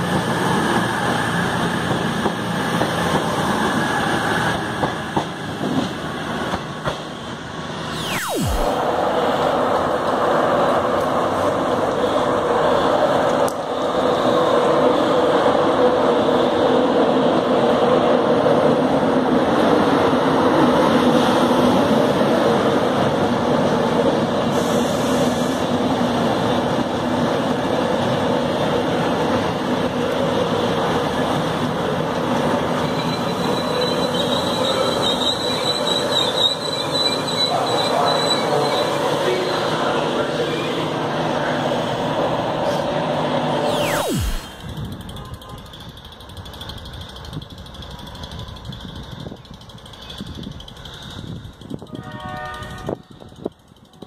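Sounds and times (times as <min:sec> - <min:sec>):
train wheels rumbling on rails: 0:00.0 - 0:07.7, 0:44.9 - 0:54.0
high wheel squeal: 0:32.8 - 0:39.1.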